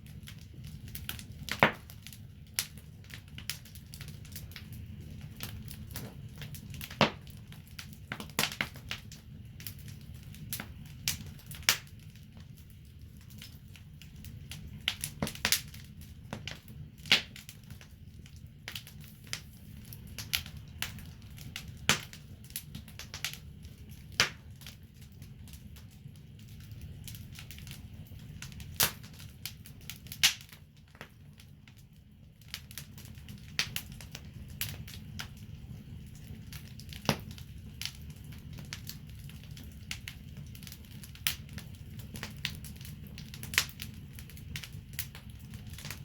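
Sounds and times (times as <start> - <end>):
wood fire crackling: 0.0 - 46.0.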